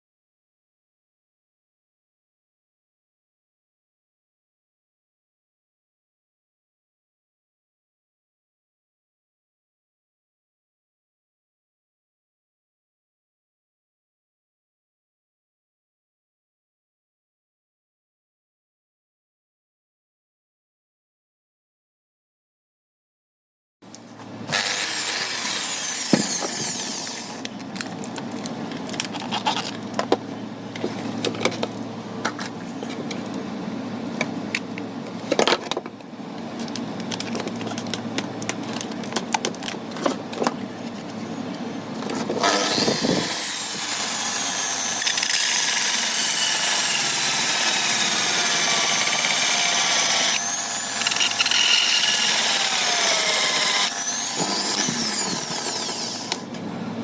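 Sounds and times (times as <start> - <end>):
small power tool running: 24.5 - 27.5, 42.4 - 56.5.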